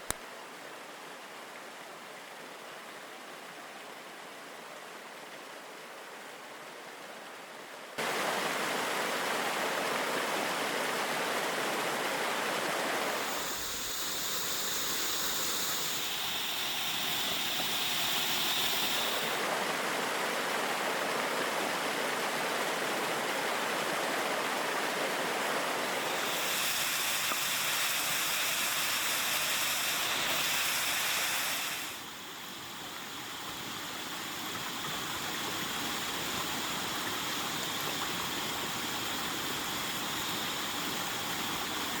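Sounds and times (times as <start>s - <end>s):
waterfall rushing: 13.0s - 21.0s, 24.5s - 32.0s.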